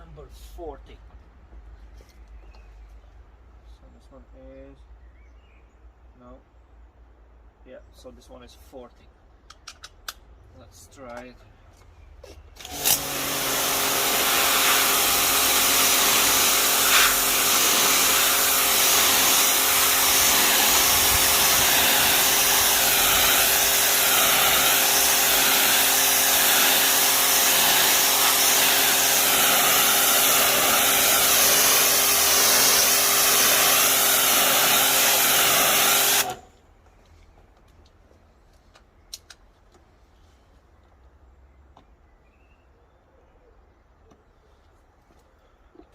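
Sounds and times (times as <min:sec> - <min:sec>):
pressure washer motor hum: 0:12.6 - 0:36.5
water jet hissing: 0:12.7 - 0:36.4.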